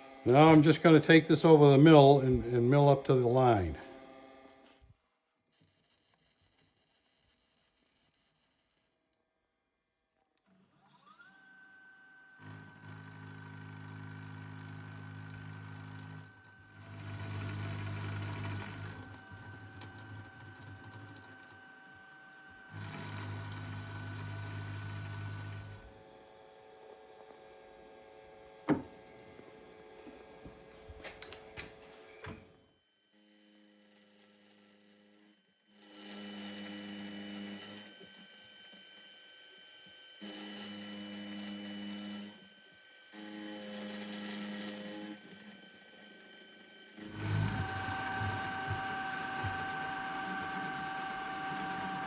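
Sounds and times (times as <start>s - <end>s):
milling machine spindle whine: 0.0s - 4.5s, 10.7s - 27.5s, 33.2s - 52.0s
cutter milling metal: 10.8s - 25.8s, 33.2s - 52.0s
clicks and knocks of workpiece: 28.7s - 29.0s.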